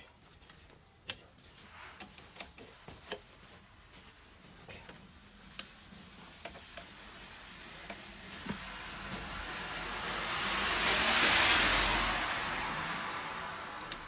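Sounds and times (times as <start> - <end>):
road hiss: 5.4 - 14.0.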